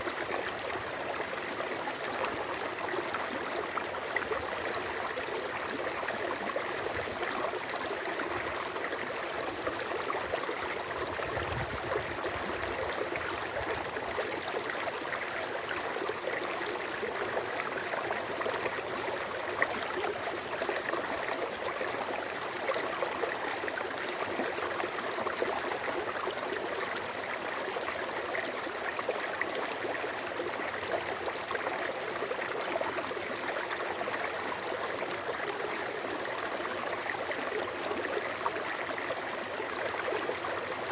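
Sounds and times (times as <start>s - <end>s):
running water babbling: 0.0s - 40.9s
water gurgles: 0.0s - 40.9s.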